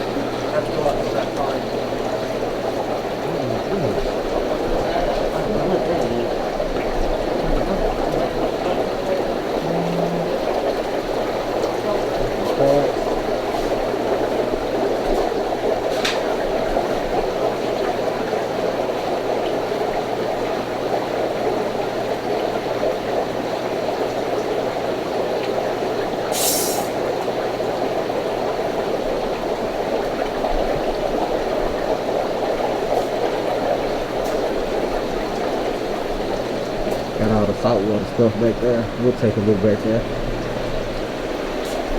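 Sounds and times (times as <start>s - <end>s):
circulating water rushing: 0.0s - 41.9s
pump hum: 0.0s - 41.9s
brief hiss: 26.3s - 27.0s.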